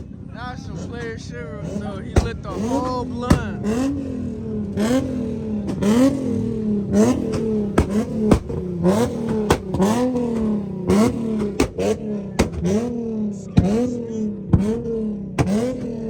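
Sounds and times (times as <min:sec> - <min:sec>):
car engine revving: 0:00.0 - 0:16.0
exhaust pops and cracks: 0:01.8 - 0:13.0, 0:14.5 - 0:16.0.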